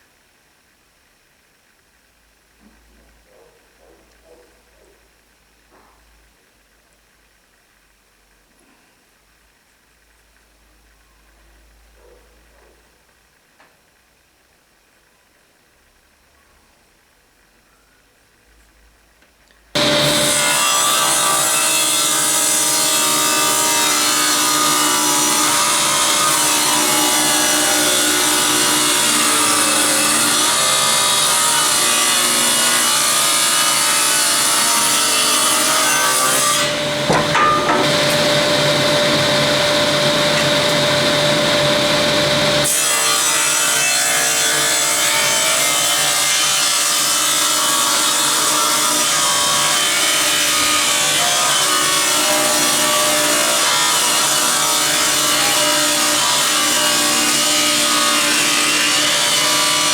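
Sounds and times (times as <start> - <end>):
woodworking tool sawing or sanding: 19.8 - 59.9.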